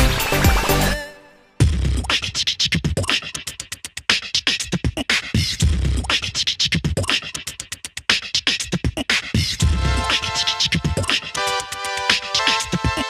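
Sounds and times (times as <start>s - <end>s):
beatbox-style electronic beat: 0.0s - 13.0s
deep bass thumps: 1.6s - 2.1s, 9.6s - 10.1s.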